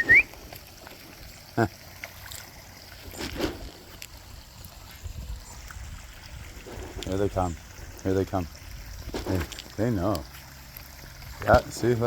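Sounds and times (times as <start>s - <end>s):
short vocal calls: 0.0s - 0.4s
faint trickling water: 0.0s - 12.0s.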